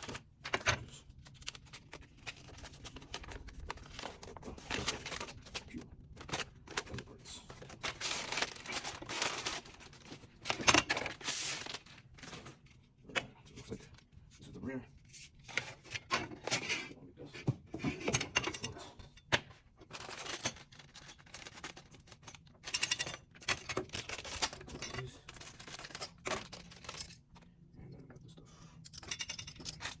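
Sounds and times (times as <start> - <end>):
plastic parts clicking and knocking: 0.0 - 9.6, 17.4 - 27.5, 28.8 - 30.0
packaging rustling: 1.3 - 12.6, 23.9 - 27.2.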